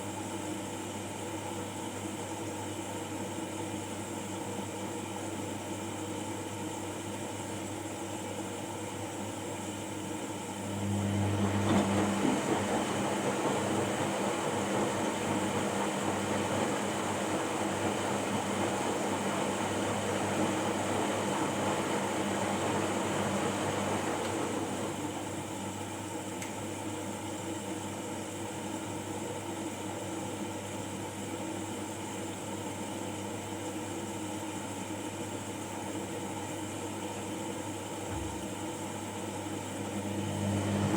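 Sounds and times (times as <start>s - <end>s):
washing machine humming: 0.0s - 40.9s.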